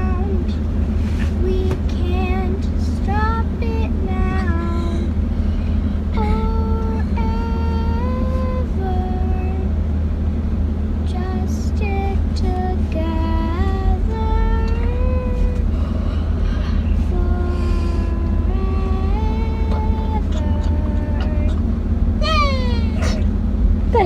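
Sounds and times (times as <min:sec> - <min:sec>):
low engine drone: 0:00.0 - 0:24.0
high voice singing: 0:22.2 - 0:23.3.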